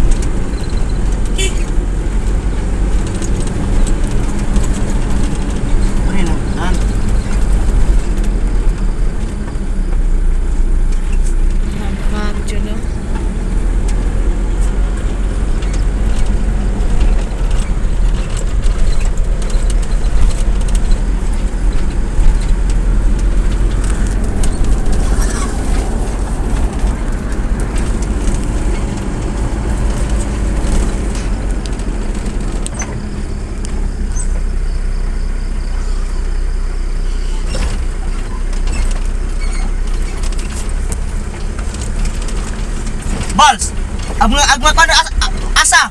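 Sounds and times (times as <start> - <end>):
small rattles and clicks: 0.0 - 34.5, 37.4 - 45.5
vehicle engine and road rumble: 0.0 - 45.9.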